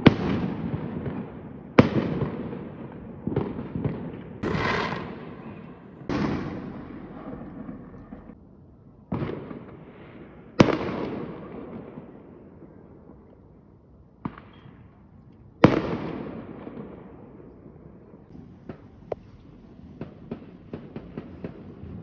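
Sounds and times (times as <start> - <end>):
fireworks bangs: 0.0 - 8.4, 18.3 - 22.0
rumbling echo: 4.4 - 8.4.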